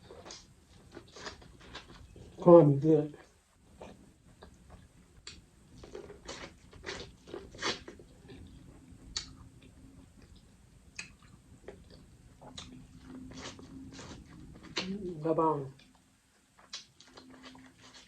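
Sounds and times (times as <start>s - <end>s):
person chewing corn on the cob: 15.8s - 18.0s.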